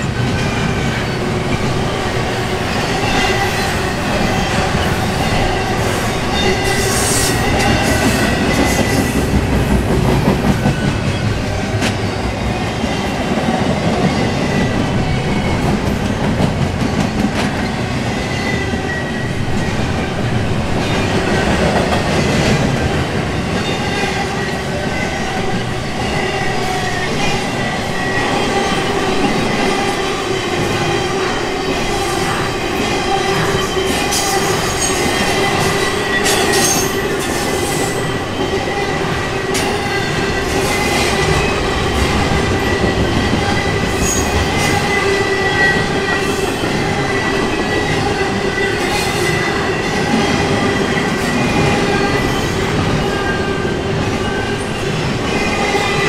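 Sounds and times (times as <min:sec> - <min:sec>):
steel wheels rumbling on rail: 0:00.0 - 0:56.0.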